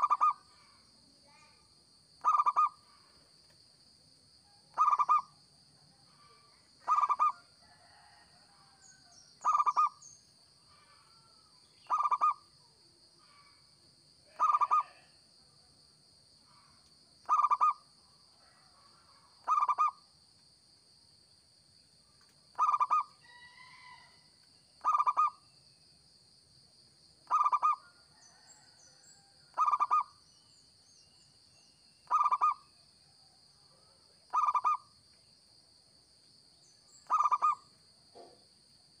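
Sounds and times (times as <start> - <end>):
dove cooing: 0.0 - 0.4, 2.2 - 2.8, 4.8 - 5.3, 6.8 - 7.4, 9.4 - 10.0, 11.9 - 12.4, 14.3 - 15.0, 17.2 - 17.8, 19.4 - 20.0, 22.6 - 23.1, 24.8 - 25.3, 27.3 - 28.6, 29.5 - 30.1, 32.1 - 32.6, 34.3 - 34.8, 37.1 - 37.6.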